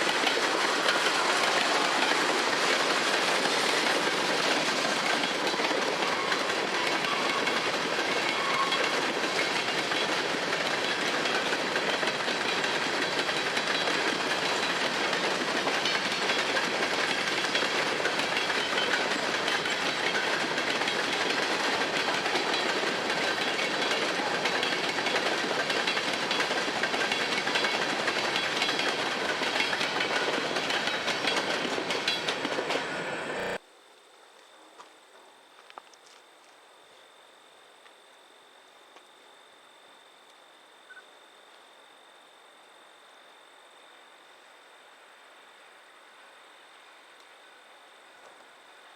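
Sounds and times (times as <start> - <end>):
train wheels clattering on rails: 0.0 - 33.6.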